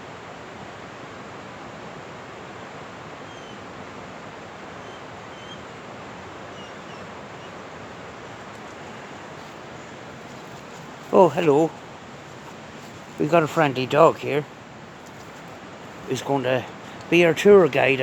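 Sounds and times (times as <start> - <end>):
river water rushing: 0.0 - 18.0
bird chirping: 4.8 - 5.6.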